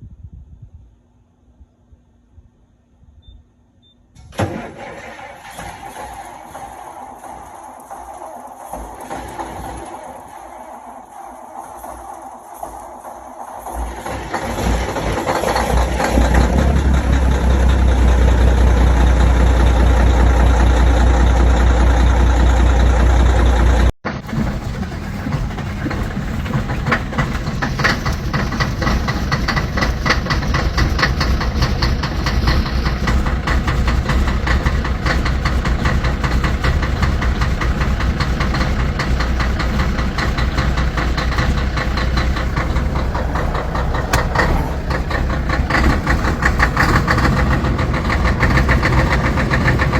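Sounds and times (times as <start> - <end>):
diesel engine idling clatter: 4.3 - 49.9
diesel engine deep rumble: 4.5 - 49.9.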